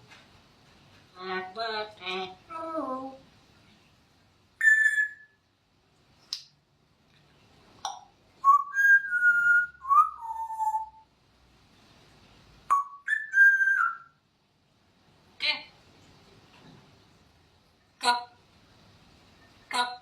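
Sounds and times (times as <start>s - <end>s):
parrot whistling: 4.6s - 5.4s, 8.4s - 11.0s, 12.7s - 14.2s.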